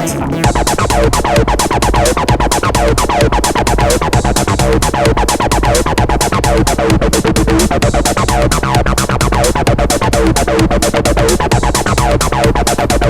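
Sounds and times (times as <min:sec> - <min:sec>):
deep synth bassline: 0:00.0 - 0:13.0
fast drum beat: 0:00.0 - 0:13.0.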